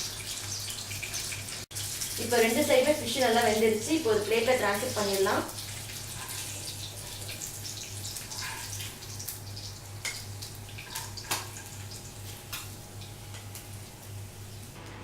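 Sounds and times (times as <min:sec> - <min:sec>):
fish sizzling in hot oil: 0:00.0 - 0:14.8.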